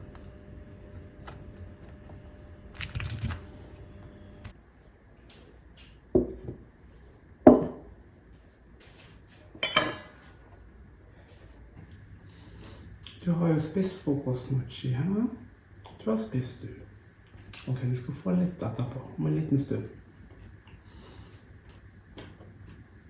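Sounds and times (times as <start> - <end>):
dishes and cutlery clinking: 9.6 - 10.4.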